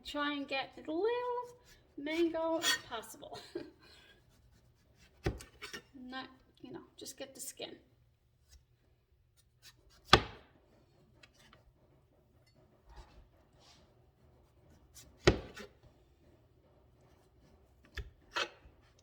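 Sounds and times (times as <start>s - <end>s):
knife tapping and scraping: 4.4s - 5.9s, 17.0s - 19.0s.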